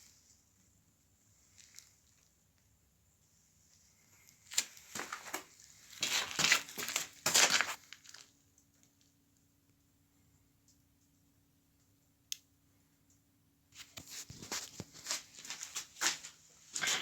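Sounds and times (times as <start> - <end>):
packaging crumpled and torn: 6.0 - 8.3.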